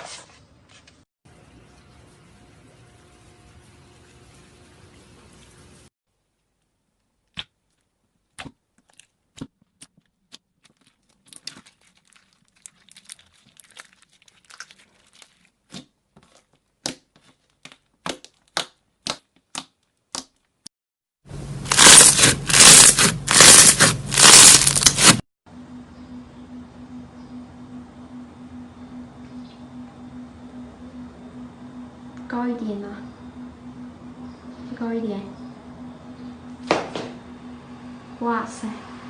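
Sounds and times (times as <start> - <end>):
loud crackling crunches: 21.6 - 25.2.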